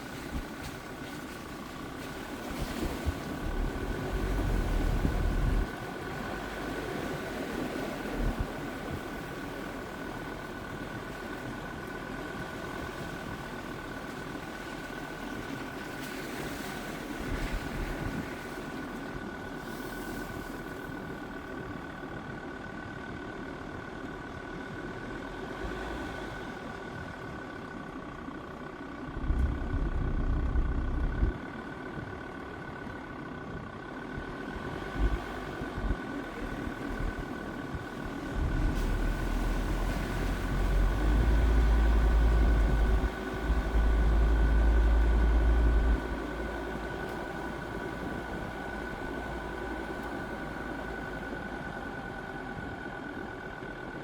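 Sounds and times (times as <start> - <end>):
diesel engine running: 0.0 - 54.0
constant whine: 17.0 - 54.0
heavy low rumbles: 28.2 - 32.7, 33.6 - 53.6.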